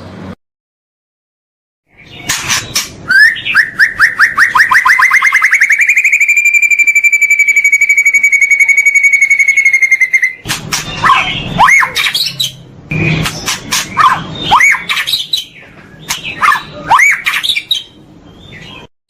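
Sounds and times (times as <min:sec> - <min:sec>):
fast high bird trill: 0:02.0 - 0:15.6.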